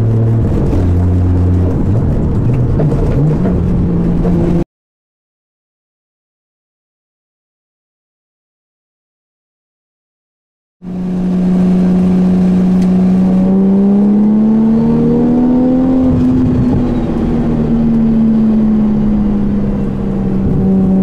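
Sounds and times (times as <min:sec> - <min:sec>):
car engine running while driving: 0:00.0 - 0:04.6, 0:10.8 - 0:21.0.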